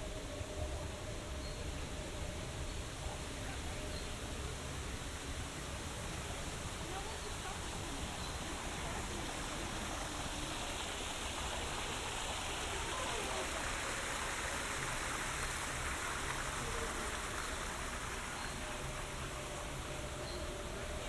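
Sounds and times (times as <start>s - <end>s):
faint voices: 0.0s - 21.0s
water rushing: 4.3s - 21.0s.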